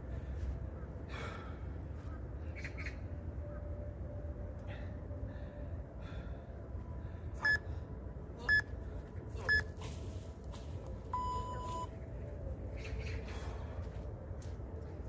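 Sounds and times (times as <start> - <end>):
long low timer beep: 11.1 - 11.9.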